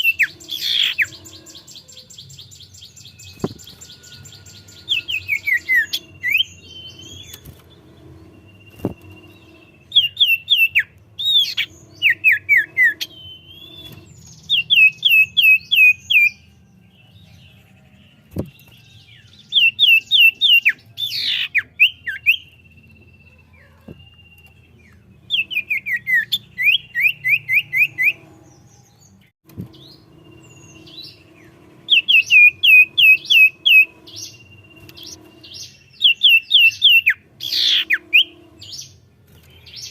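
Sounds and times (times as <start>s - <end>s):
bird whistling falling notes: 0.0s - 16.4s, 29.6s - 38.9s
long steady bird whistles: 0.0s - 39.9s.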